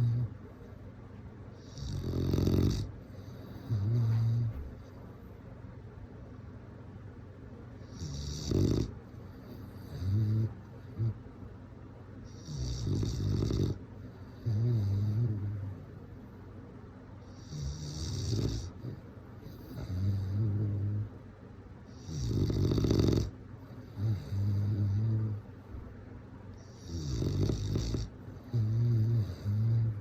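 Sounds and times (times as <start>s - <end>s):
dog snoring: 0.0s - 0.4s, 1.6s - 5.0s, 7.8s - 11.2s, 12.2s - 16.0s, 17.2s - 21.2s, 21.9s - 25.6s, 26.6s - 30.0s.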